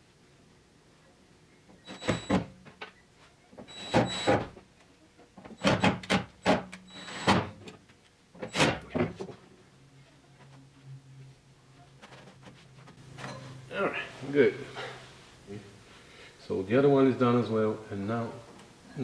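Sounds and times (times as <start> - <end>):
metallic ring: 13.2 - 13.7.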